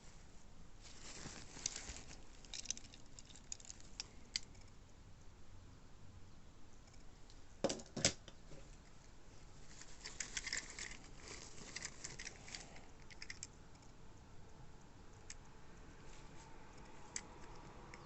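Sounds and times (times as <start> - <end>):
packaging crackling: 0.9 - 4.1, 9.7 - 13.5.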